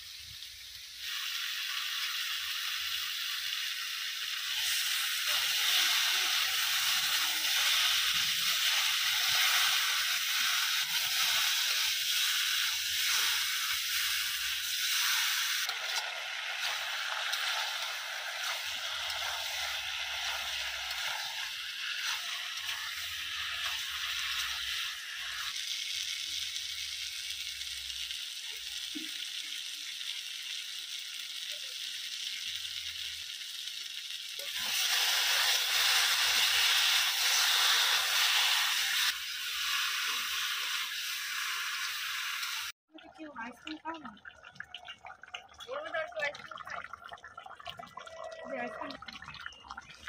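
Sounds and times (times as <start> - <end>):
curry sizzling in a wok: 0.0 - 42.8.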